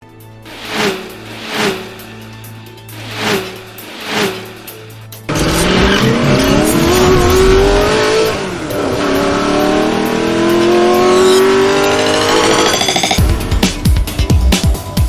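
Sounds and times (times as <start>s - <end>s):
car engine accelerating hard: 2.9s - 13.1s.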